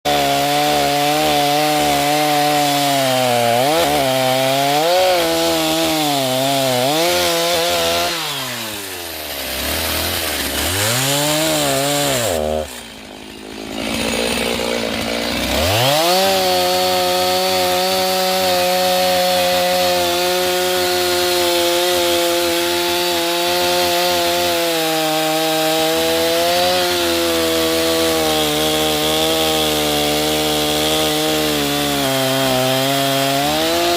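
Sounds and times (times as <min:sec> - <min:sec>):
chainsaw cutting wood: 0:00.0 - 0:33.9.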